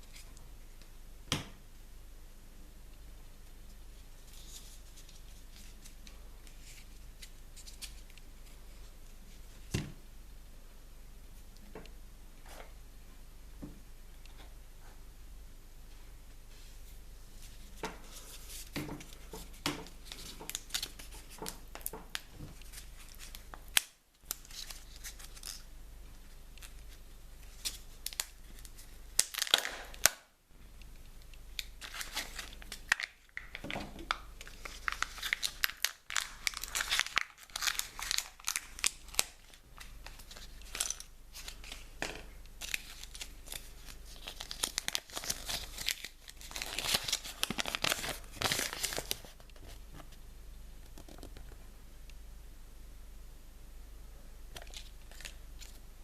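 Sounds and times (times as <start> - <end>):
wrapper crinkling and tearing: 20.0 - 25.7, 27.5 - 30.2, 31.6 - 42.0, 42.6 - 49.4, 54.6 - 55.8.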